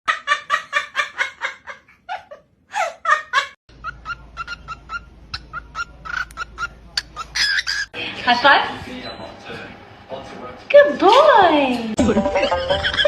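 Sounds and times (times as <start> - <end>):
parrot laughing: 0.1 - 8.0, 12.4 - 13.0
bird chirping: 3.7 - 8.0.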